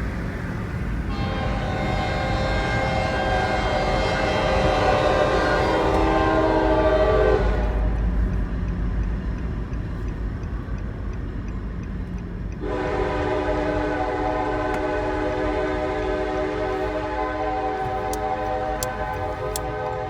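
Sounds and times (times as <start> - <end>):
diesel engine low rumble: 0.0 - 20.0
locomotive air horn: 1.1 - 8.0, 12.6 - 20.0.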